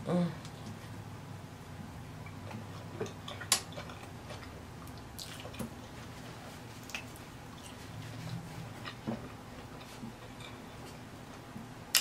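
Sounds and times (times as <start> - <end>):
person chewing with lip smacks: 2.3 - 5.8.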